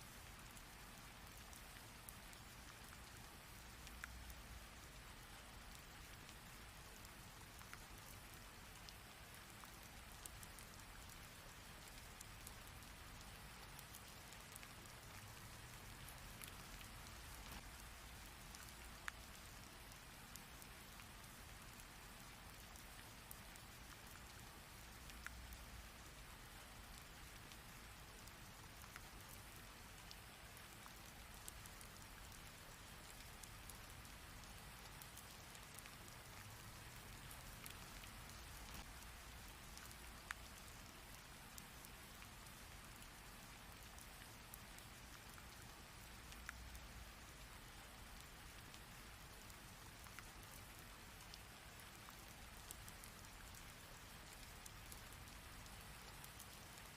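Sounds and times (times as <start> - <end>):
rain drop ticks: 0.1 - 56.9.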